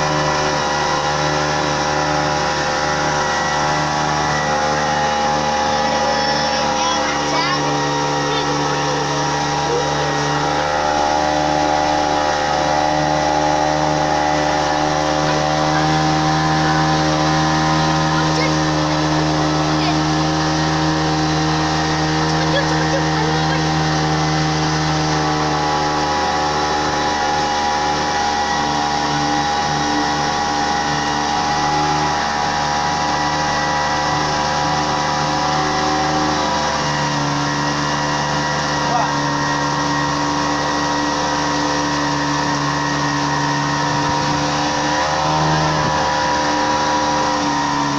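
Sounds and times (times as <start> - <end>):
motorboat engine running: 0.0 - 47.9.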